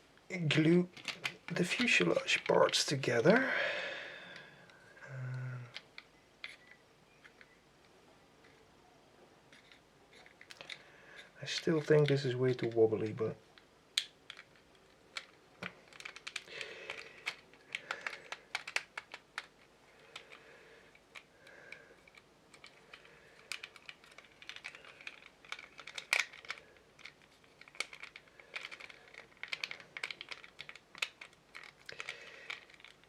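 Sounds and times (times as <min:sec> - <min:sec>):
plastic parts clicking and tapping: 0:00.6 - 0:03.5, 0:05.3 - 0:07.6, 0:09.5 - 0:33.0.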